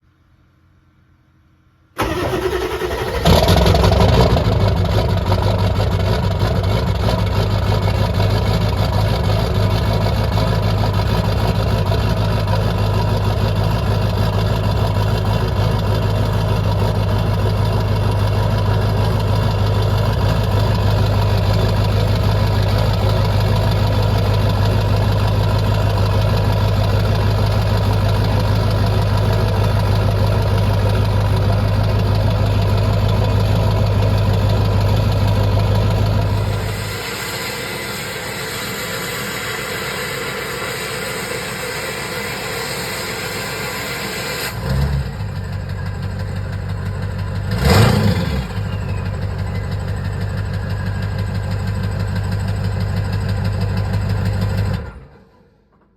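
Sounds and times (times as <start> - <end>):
diesel engine starting and idling: 2.0 - 55.7.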